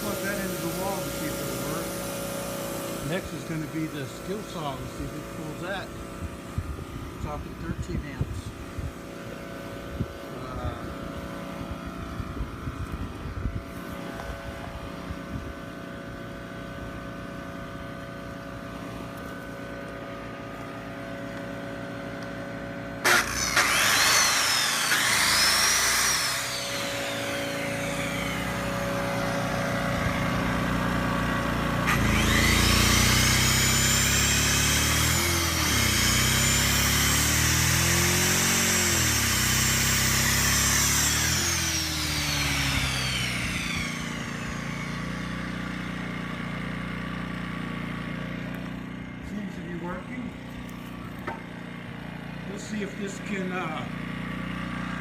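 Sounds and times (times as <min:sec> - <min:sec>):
circular saw running: 0:00.0 - 0:06.2, 0:20.1 - 0:55.0
generator engine running: 0:00.0 - 0:55.0.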